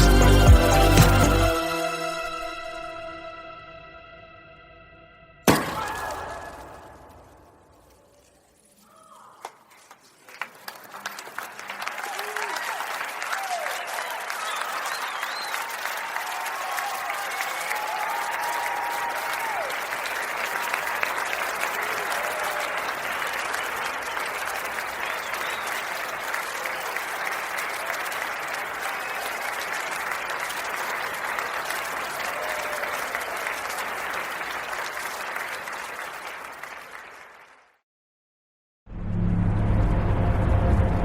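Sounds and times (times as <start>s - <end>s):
audience applauding: 0.0s - 2.2s, 9.4s - 37.8s.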